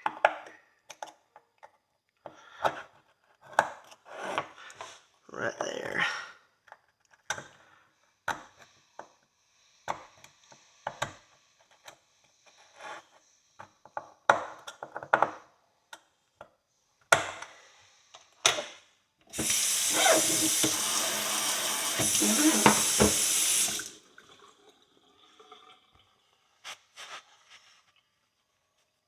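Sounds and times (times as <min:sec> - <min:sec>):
faucet running into sink: 0:19.3 - 0:26.5
tool scraping iron horseshoe: 0:19.4 - 0:20.8.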